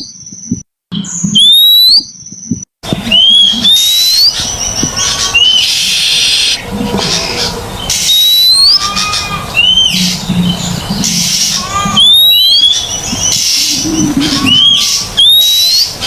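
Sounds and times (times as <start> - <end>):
bird chattering notes: 2.4 - 16.0
bird whistles sliding upward: 8.0 - 8.9.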